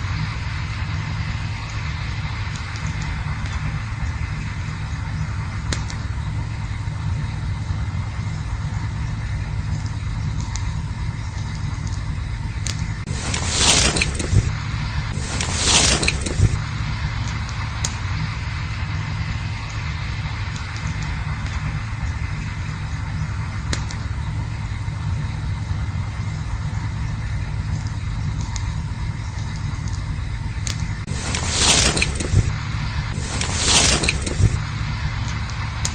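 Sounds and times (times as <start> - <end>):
campfire rumbling: 0.0 - 35.9
fire crackles: 0.0 - 35.9
loud rushing noise: 13.0 - 22.1, 31.0 - 35.9.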